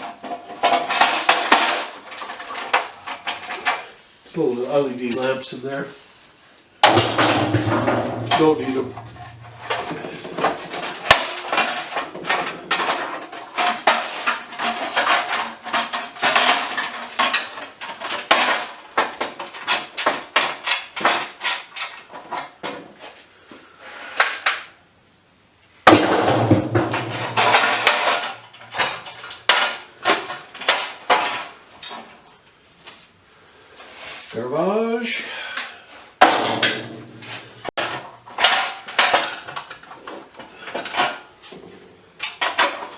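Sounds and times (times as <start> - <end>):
metal parts clinking and rattling: 0.0 - 4.3, 6.8 - 23.3, 26.3 - 32.1, 36.2 - 41.6.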